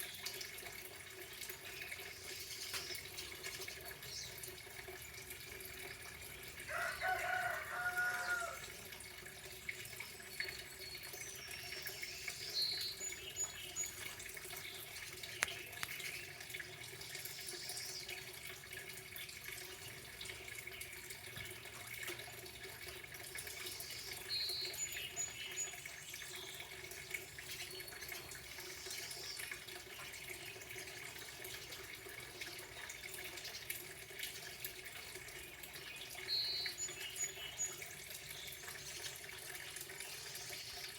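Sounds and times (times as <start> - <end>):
running water trickling: 0.0 - 40.9
birds calling: 9.8 - 16.4, 35.8 - 40.9.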